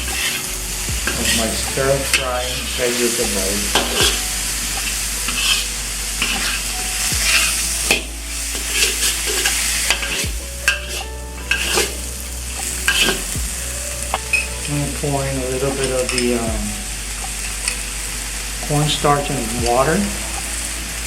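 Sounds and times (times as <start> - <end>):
spatula scraping a pan: 0.0 - 13.4
food sizzling in a pan: 0.0 - 21.0.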